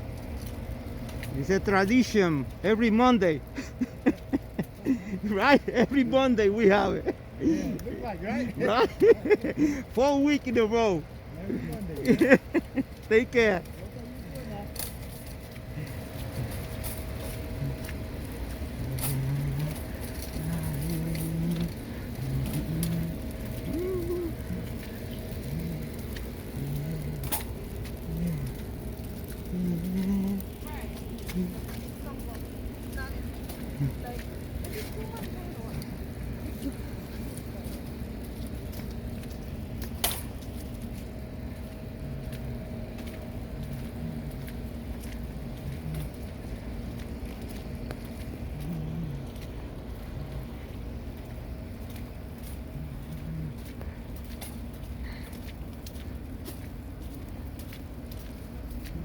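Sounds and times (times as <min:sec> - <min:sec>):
car engine and road rumble: 0:00.0 - 0:59.0
faint ticks: 0:14.7 - 0:59.0.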